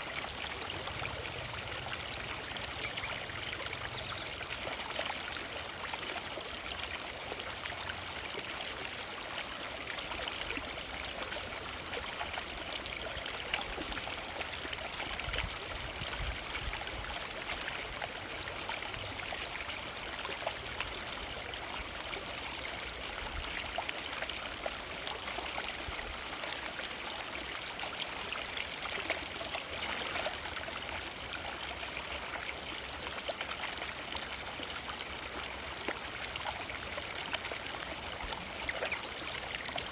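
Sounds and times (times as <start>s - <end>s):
river flowing: 26.5s - 39.9s.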